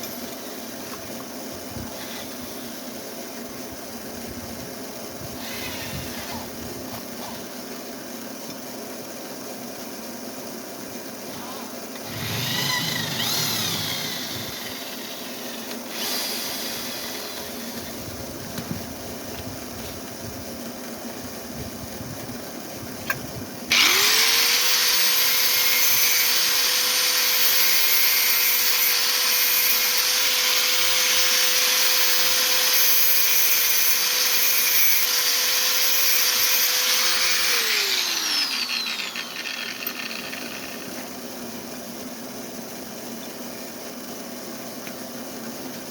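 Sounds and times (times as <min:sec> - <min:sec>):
electric motor whining: 0:12.0 - 0:18.0, 0:23.7 - 0:41.0.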